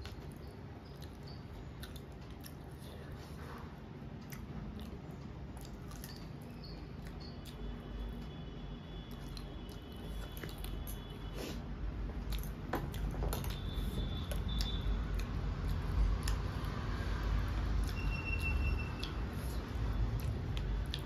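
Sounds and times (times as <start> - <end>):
person chewing food: 0.0 - 3.6, 4.2 - 7.7, 12.2 - 21.0.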